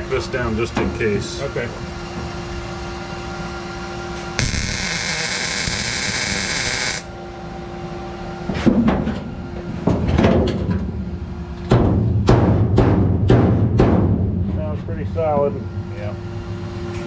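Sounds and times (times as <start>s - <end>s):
welding arc crackling: 4.4s - 7.1s.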